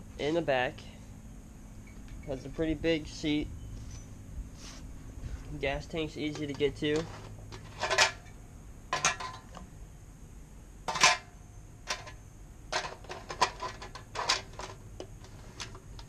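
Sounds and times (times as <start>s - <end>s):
metallic clinks and knocks: 1.8s - 2.8s, 6.2s - 9.7s.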